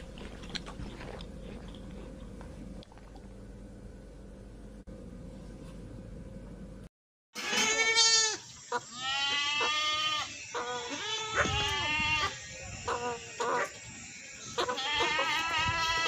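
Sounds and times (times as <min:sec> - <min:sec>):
goat bleating: 0:07.4 - 0:13.7, 0:14.5 - 0:16.0.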